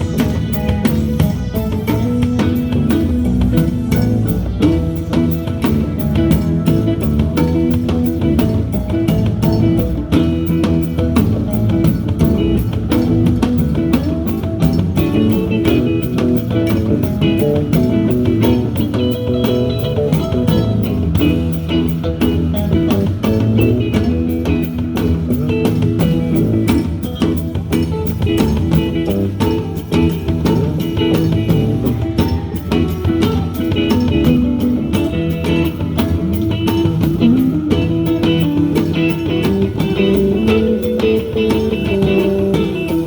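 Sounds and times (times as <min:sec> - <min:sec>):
drum kit beat: 0:00.0 - 0:43.0
guitar: 0:00.0 - 0:43.0.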